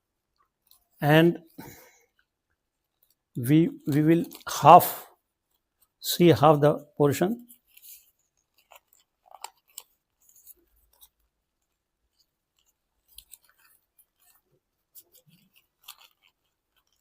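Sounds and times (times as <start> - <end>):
paper being folded: 2.9 - 6.0, 7.4 - 17.0
paper crinkles and rustles: 3.8 - 6.0, 7.4 - 17.0.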